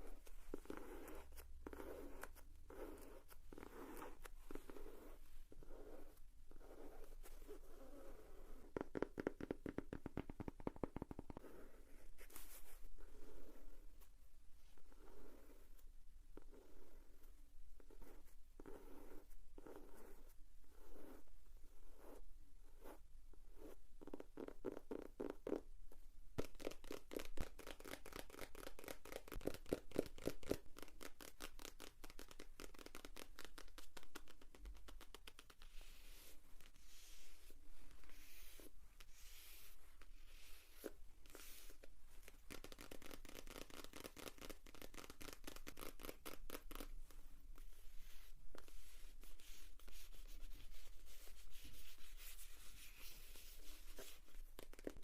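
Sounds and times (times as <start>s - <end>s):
soft scratchy brushing: 0.0s - 8.9s, 11.3s - 23.8s, 33.1s - 55.0s.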